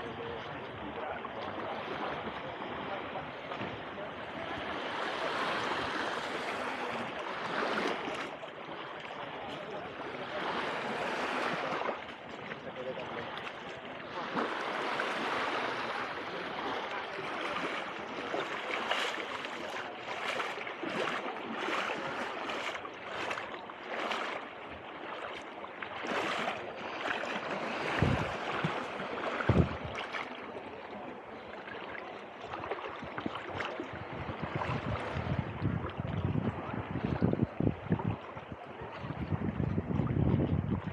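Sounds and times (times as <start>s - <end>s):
waves splashing at shoreline: 0.0s - 40.9s
short low thumps: 29.5s - 30.0s.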